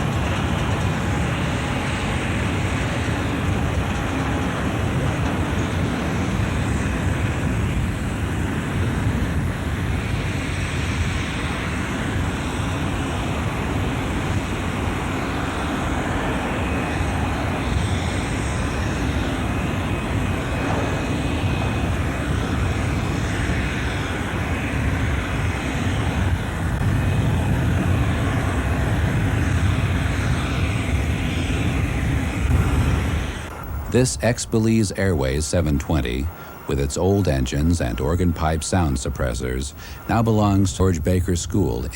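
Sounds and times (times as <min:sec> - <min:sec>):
jet engines rumbling: 0:00.0 - 0:41.9
faint high whine: 0:10.1 - 0:41.9.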